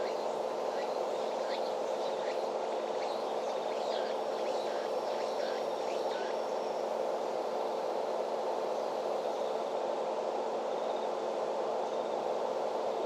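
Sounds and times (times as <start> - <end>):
small birds chirping: 0.0 - 6.8.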